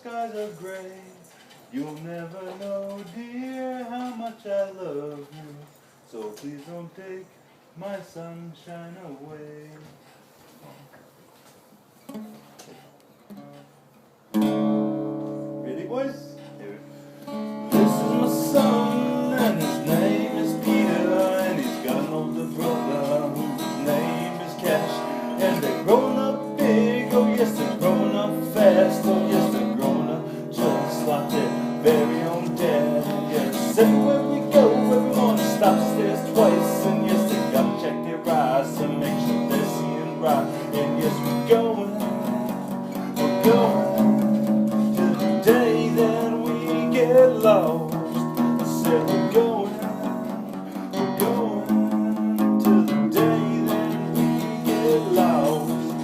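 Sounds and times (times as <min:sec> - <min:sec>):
acoustic guitar strumming: 0:12.1 - 0:56.0.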